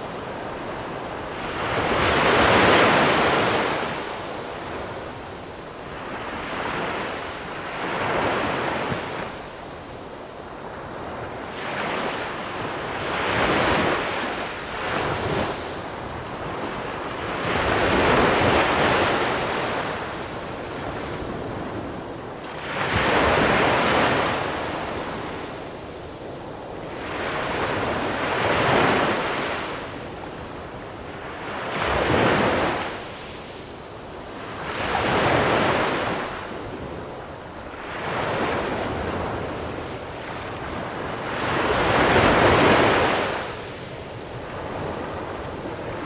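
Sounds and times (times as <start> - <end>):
wind on microphone: 34.5 - 46.0
waves breaking on pebble beach: 37.8 - 46.0.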